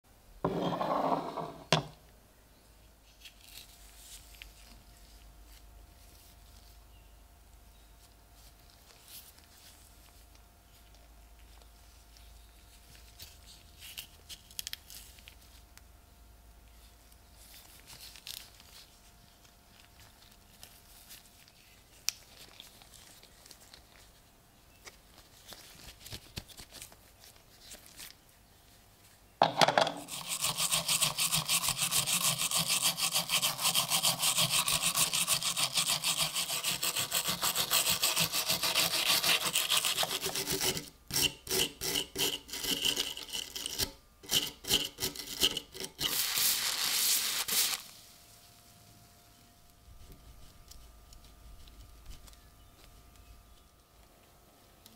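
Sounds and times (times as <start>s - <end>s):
hand scraping knife metal: 29.9s - 46.2s.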